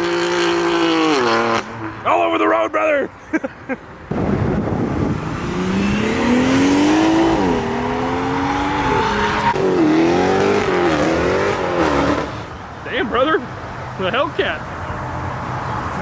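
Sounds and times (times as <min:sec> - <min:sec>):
car engine revving: 0:00.0 - 0:02.0, 0:04.1 - 0:13.3
tyres squealing: 0:07.0 - 0:13.4.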